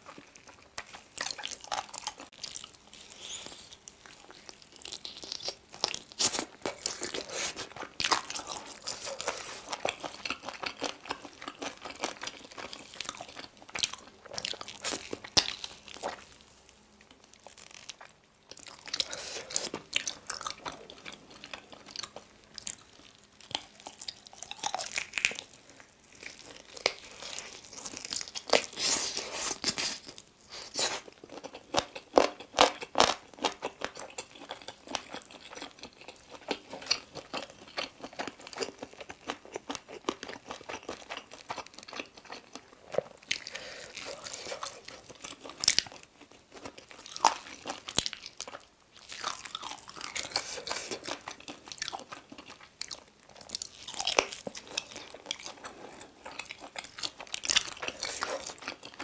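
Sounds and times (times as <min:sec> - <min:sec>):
crunching bites and chewing: 0:00.0 - 0:59.0.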